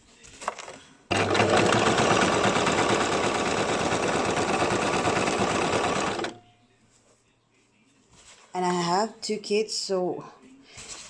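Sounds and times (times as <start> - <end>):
sewing machine stitching fabric: 0.5 - 6.4.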